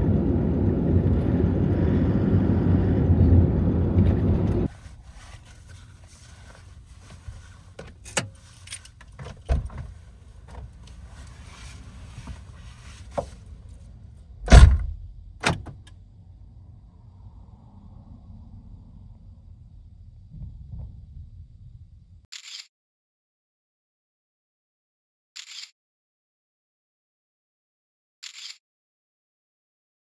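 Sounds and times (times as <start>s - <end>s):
van engine and road rumble: 0.0s - 22.3s
heavy thump: 14.4s - 15.7s.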